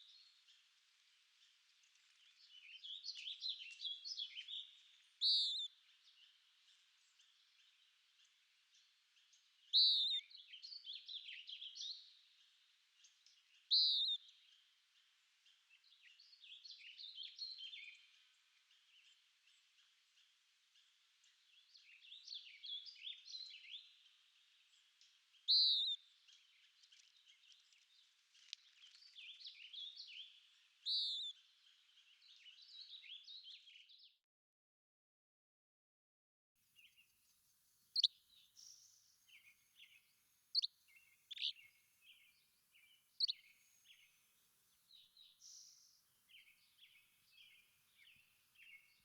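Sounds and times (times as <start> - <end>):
quiet bird twittering: 1.4 - 12.2, 13.0 - 14.6, 15.4 - 34.1, 37.8 - 49.0
songbird warbling: 38.0 - 44.1.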